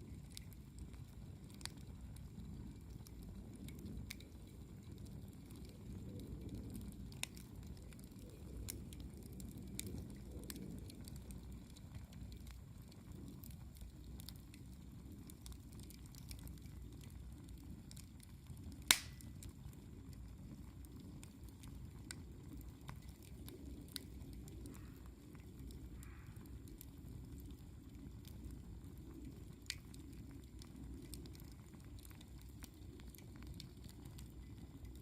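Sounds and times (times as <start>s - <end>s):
campfire crackling: 0.0s - 35.0s
low rumble of fire: 0.0s - 35.0s
loud sharp pop: 18.9s - 19.2s.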